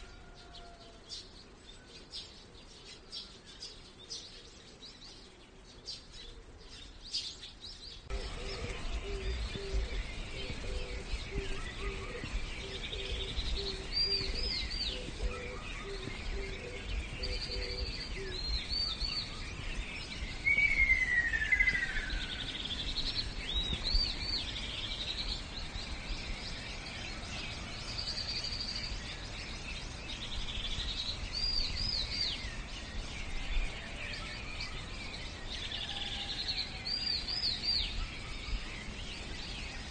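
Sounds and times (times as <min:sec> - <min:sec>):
birds chirping and calling: 0:00.0 - 0:39.9
low background rumble: 0:08.0 - 0:39.9
whistled bird note: 0:20.5 - 0:22.4.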